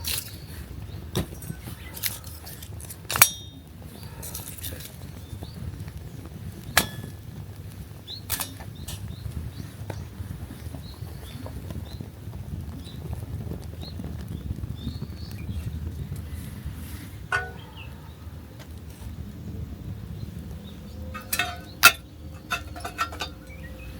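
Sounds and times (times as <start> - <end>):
low steady rumble: 0.0 - 23.9
small birds chirping: 0.0 - 23.9.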